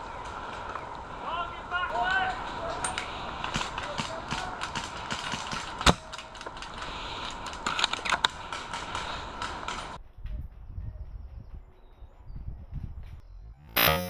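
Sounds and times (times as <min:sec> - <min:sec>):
airsoft guns firing: 0:02.2 - 0:10.0.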